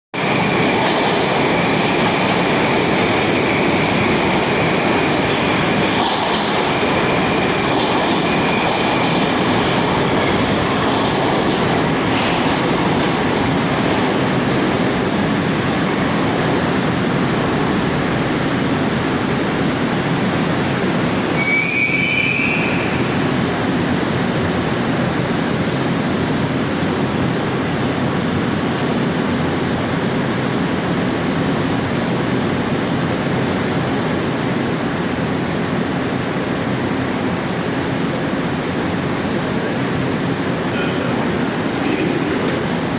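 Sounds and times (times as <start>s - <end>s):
train wheels rumbling on rail: 0.2s - 42.9s
high wheel squeal: 6.2s - 18.6s, 21.1s - 23.3s.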